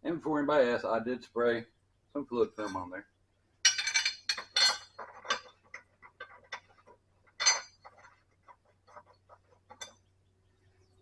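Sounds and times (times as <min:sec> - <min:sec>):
metal clanks: 0:03.6 - 0:10.0.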